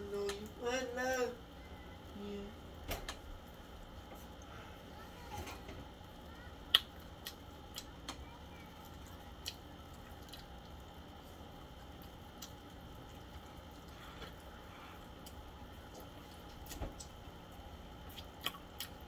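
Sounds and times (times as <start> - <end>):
person chewing: 6.7 - 7.9, 8.8 - 10.9, 18.0 - 19.0
wet mouth clicks and smacks: 6.7 - 7.9, 18.1 - 19.0.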